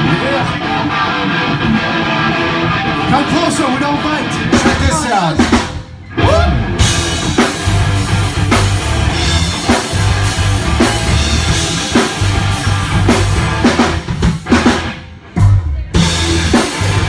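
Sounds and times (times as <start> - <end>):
bass and electric guitar: 0.0 - 17.0
drum kit beat: 4.0 - 17.0.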